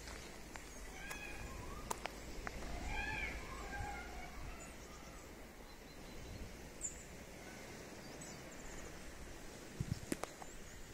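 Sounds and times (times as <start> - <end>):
bird chirps and trill: 0.8 - 7.0.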